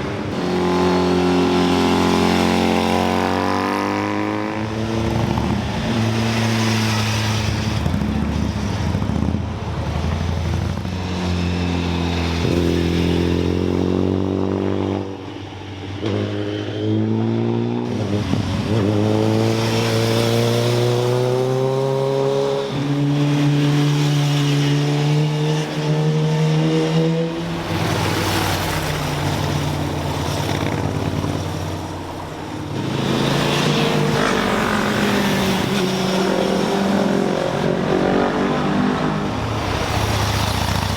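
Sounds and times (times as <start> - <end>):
motorcycles and cars passing: 0.0 - 40.9.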